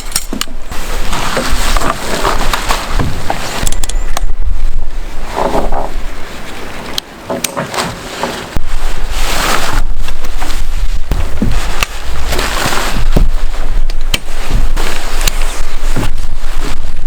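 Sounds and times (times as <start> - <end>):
wind buffeting microphone: 0.0 - 17.0
sharp clicks: 3.6 - 4.3.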